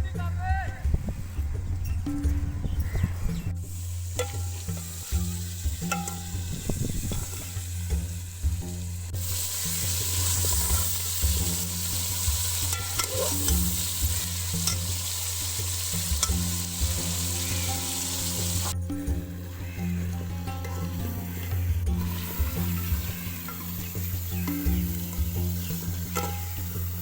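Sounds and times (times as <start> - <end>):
chicken sizzling in a pan: 3.7 - 18.8, 20.7 - 27.0
spoon tapping and scraping: 5.8 - 6.4, 12.7 - 14.9, 26.1 - 26.8.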